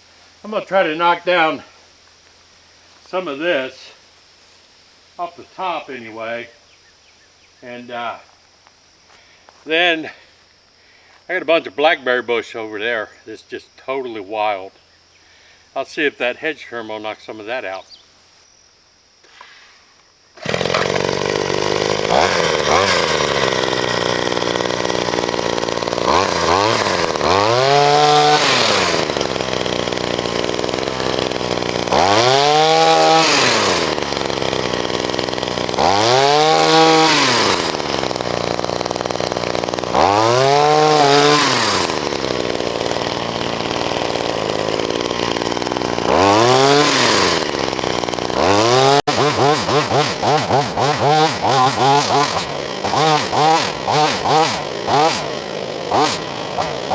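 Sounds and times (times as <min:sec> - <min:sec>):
hedge trimmer engine revving: 0:20.4 - 0:56.9.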